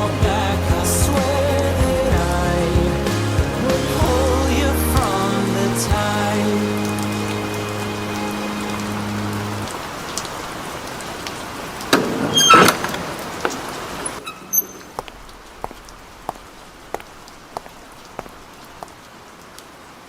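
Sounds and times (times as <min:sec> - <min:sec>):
steady rain hiss: 0:00.0 - 0:20.0
slow water drips: 0:03.2 - 0:19.9
scraping rattle with squeaks: 0:12.1 - 0:12.9.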